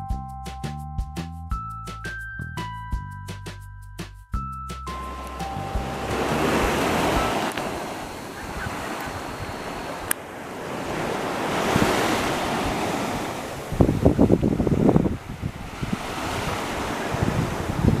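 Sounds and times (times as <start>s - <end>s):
sea waves washing: 4.9s - 18.0s
wind buffeting microphone: 5.8s - 18.0s.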